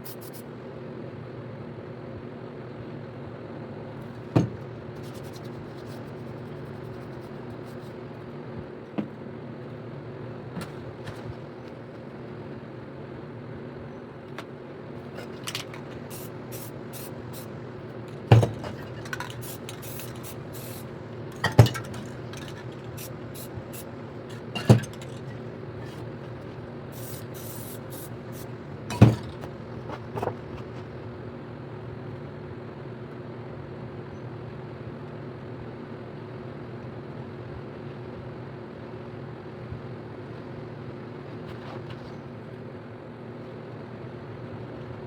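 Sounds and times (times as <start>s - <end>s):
spray paint can hissing: 0.0s - 0.4s, 15.4s - 17.6s, 18.3s - 26.0s, 26.9s - 29.0s
steady low hum: 0.0s - 34.7s.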